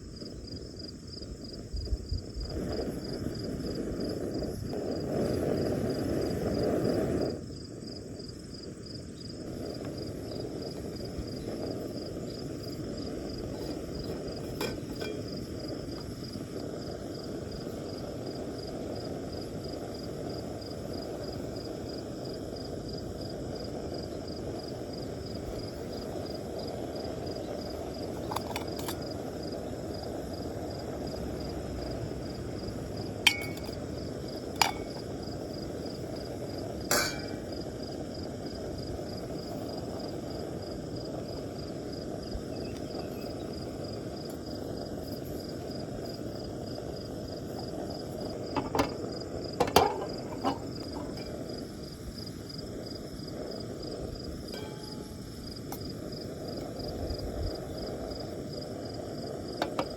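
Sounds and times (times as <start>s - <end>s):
cookware clinks: 33.3s - 33.8s, 34.6s - 35.0s, 36.9s - 37.4s, 54.5s - 55.1s.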